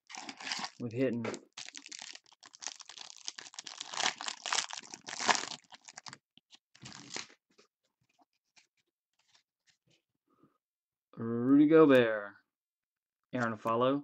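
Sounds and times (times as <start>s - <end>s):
wrapper crinkling and tearing: 0.0s - 6.2s, 6.8s - 7.4s.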